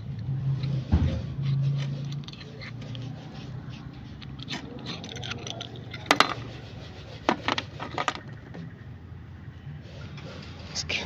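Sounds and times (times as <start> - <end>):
small metal parts clicking: 1.8 - 6.4.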